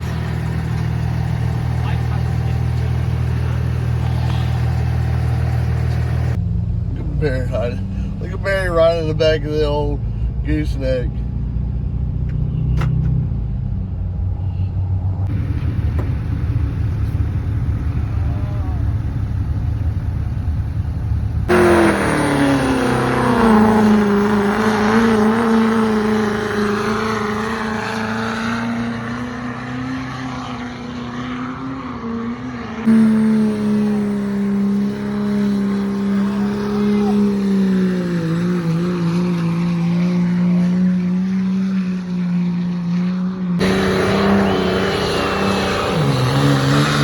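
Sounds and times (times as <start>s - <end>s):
diesel truck engine rumbling: 0.0s - 31.2s, 32.8s - 42.1s
engine revving at full throttle: 21.4s - 47.0s.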